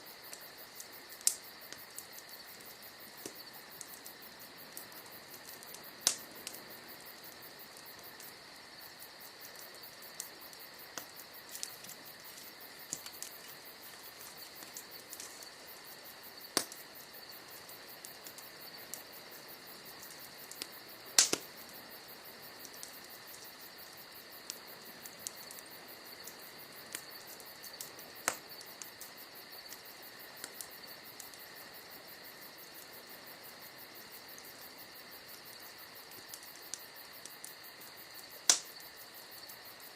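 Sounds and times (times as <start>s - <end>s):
bonfire crackling and popping: 0.0s - 39.9s
crickets chirping: 0.0s - 39.9s.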